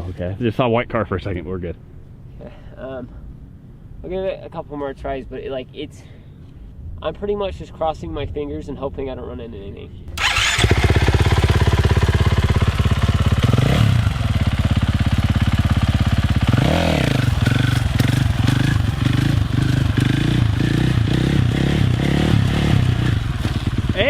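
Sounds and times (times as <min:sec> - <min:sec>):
dirt bike engine revving: 0:10.2 - 0:24.0.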